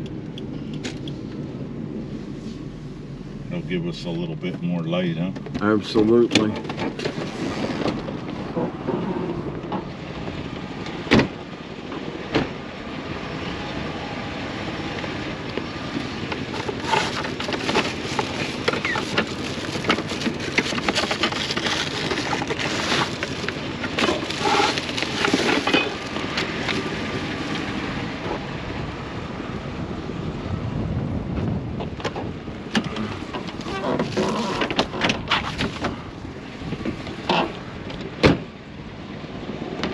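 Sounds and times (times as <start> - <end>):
vehicle engine running: 0.0 - 7.4, 12.7 - 29.3.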